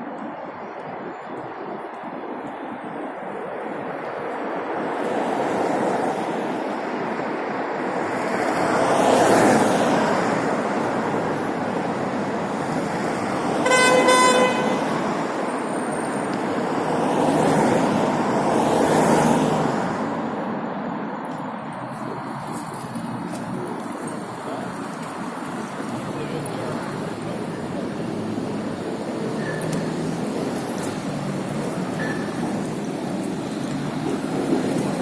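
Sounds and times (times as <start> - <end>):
vehicles passing: 0.0 - 35.0
vehicle horn honk: 13.6 - 15.0.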